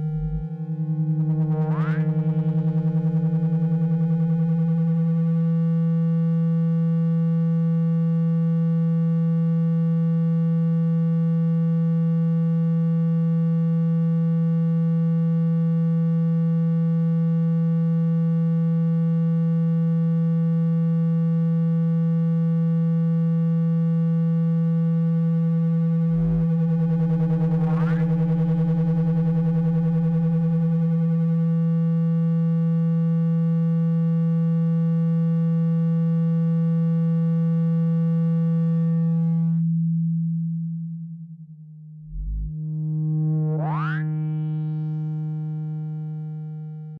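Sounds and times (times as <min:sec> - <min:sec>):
low electronic tone: 0:00.0 - 0:09.8, 0:23.5 - 0:46.9.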